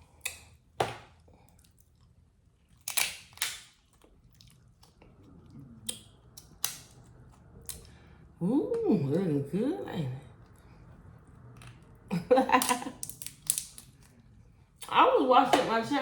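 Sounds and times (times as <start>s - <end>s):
sharp clicks and crackles: 12.6s - 13.9s.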